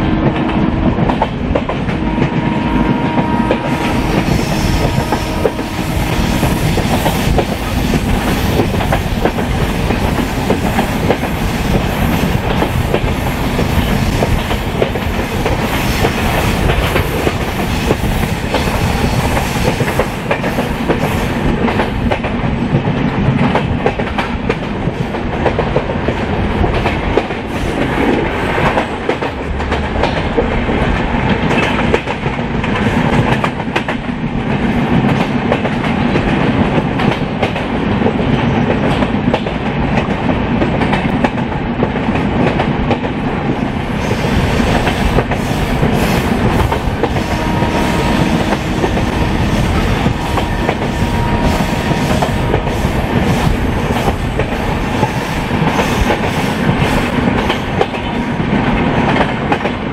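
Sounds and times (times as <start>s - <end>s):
train running gear rumble: 0.0s - 59.9s
hiss: 44.0s - 47.4s, 51.5s - 57.6s.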